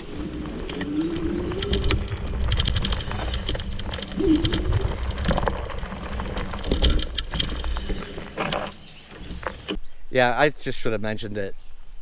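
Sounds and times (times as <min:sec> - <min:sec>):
dove-like cooing call: 0:00.0 - 0:05.4
clicks and rustles of movement: 0:00.0 - 0:09.8
low rumbling wind: 0:00.0 - 0:12.0.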